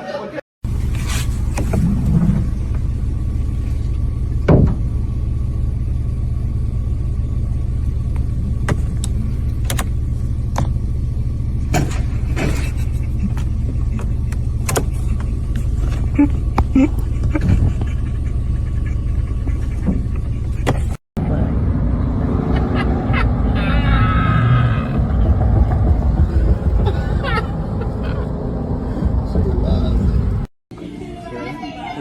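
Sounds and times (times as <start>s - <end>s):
steady low rumble: 0.7s - 30.5s
sharp clicks and knocks: 8.1s - 10.8s, 11.7s - 18.0s.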